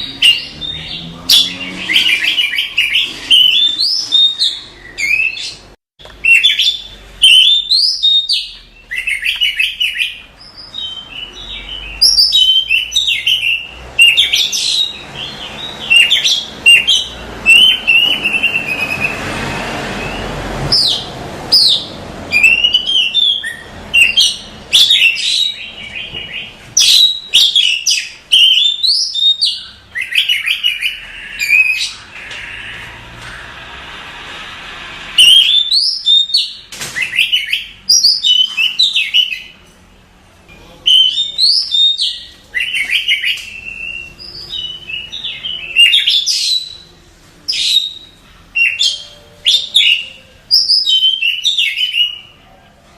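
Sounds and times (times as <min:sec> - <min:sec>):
bird singing: 0:00.0 - 0:33.5, 0:35.2 - 0:39.6, 0:40.5 - 0:52.4.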